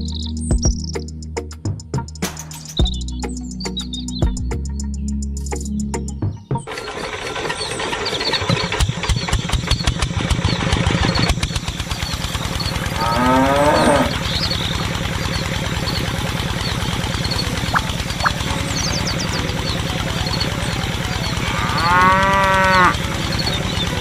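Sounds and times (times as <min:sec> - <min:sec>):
small engine chugging: 0:06.6 - 0:24.0
cow mooing: 0:12.9 - 0:14.3, 0:21.2 - 0:23.1
faint bird chirps: 0:13.8 - 0:22.0.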